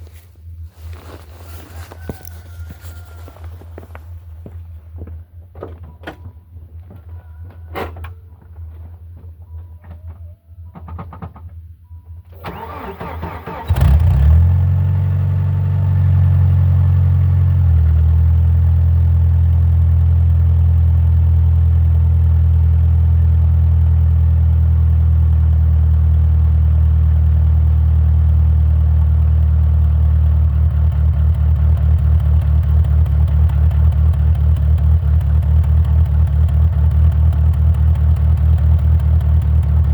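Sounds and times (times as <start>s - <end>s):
car engine idling: 12.3s - 39.9s
starter motor cranking: 12.4s - 14.2s.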